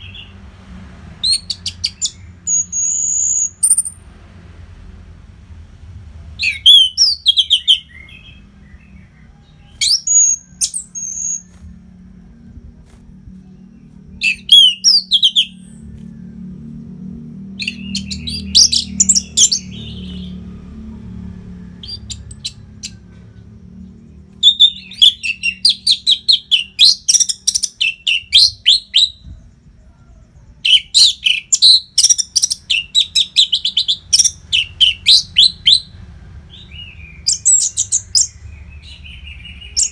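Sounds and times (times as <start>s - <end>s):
thrush singing: 6.4s - 23.6s
faint low hum: 7.4s - 26.6s.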